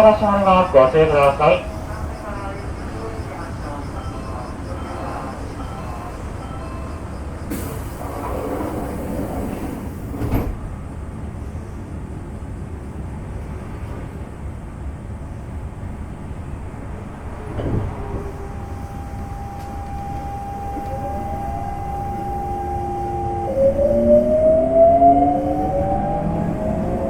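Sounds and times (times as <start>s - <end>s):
air conditioning hum: 0.0s - 6.0s, 18.0s - 27.0s
train doors thudding shut: 0.0s - 11.1s, 16.4s - 23.5s
train inverter whine: 0.0s - 27.0s.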